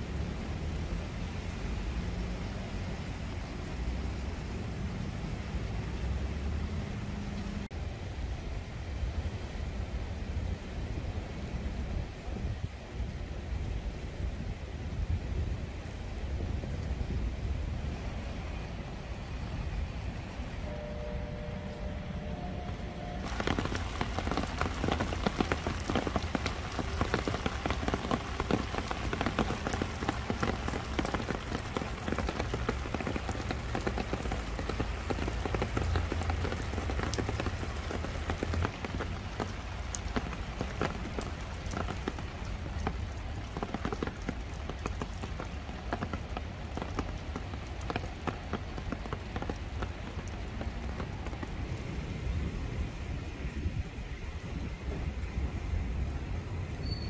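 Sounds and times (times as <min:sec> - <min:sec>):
rain drops ticking: 0:00.0 - 0:56.9
low rumble: 0:20.6 - 0:26.2.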